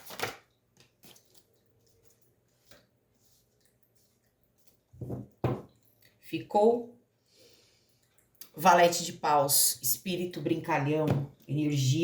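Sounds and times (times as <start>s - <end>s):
cards shuffled with rustling slaps: 0.0s - 1.4s.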